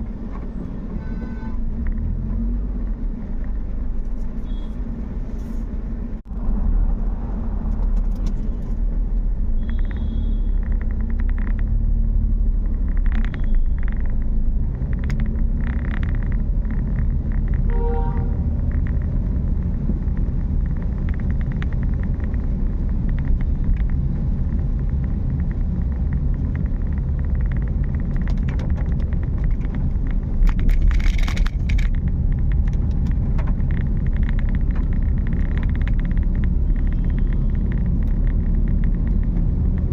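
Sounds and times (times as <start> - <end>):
car engine and tyres rumbling: 0.0 - 39.9
horn-like tone: 1.0 - 1.6, 17.7 - 18.4.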